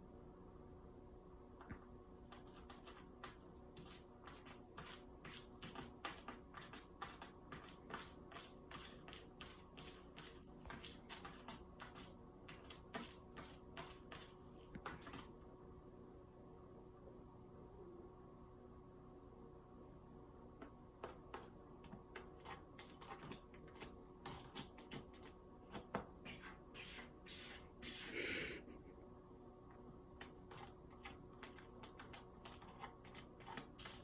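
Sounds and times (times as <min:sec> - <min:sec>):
faint steady hum: 0:00.0 - 0:34.0
cat scratching litter: 0:02.2 - 0:15.3, 0:21.0 - 0:28.6, 0:30.2 - 0:34.0.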